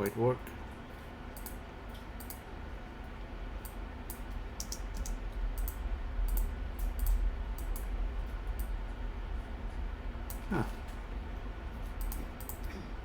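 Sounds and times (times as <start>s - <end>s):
steady low hum: 0.0s - 13.0s
keyboard and mouse clicks: 4.1s - 7.9s, 12.0s - 12.7s.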